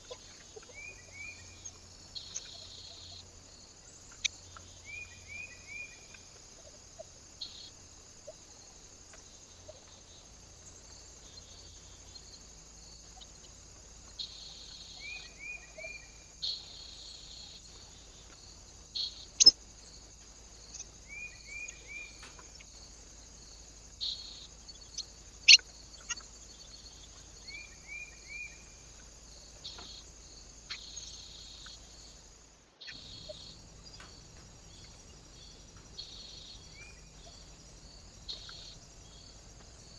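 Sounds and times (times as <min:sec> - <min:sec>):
bird chirps: 0:00.0 - 0:03.3, 0:04.1 - 0:08.4, 0:09.1 - 0:20.0, 0:20.6 - 0:39.9
steady high hiss: 0:00.0 - 0:39.9
beaks tapping on feeder: 0:33.0 - 0:39.8.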